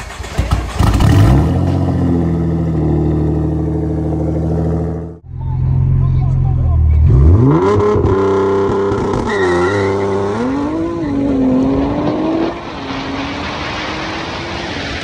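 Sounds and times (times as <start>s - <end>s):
wind and road noise: 0.0s - 15.0s
car engine accelerating hard: 6.9s - 15.0s.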